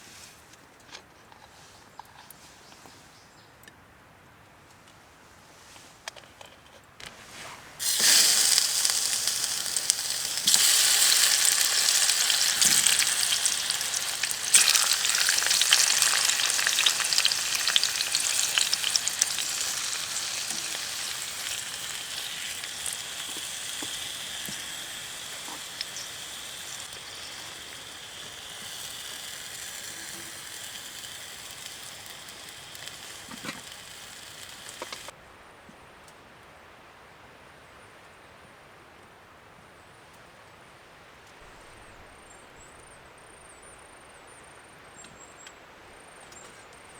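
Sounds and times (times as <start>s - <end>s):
food sizzling in hot pan: 7.8s - 35.1s.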